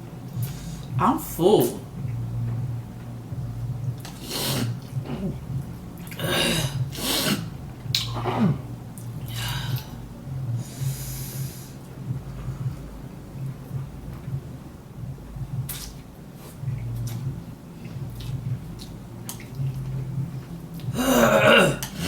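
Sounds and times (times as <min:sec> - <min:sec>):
low hum: 0:00.0 - 0:22.0
person sniffing and snorting: 0:04.1 - 0:05.3, 0:06.2 - 0:07.5
person grunting: 0:20.9 - 0:22.0.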